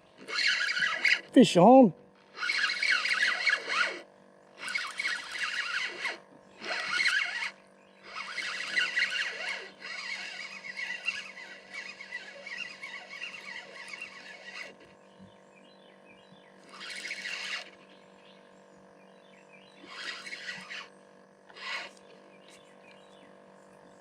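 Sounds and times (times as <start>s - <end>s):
fishing reel being cranked: 0.1s - 15.0s, 16.6s - 17.9s, 19.8s - 22.6s.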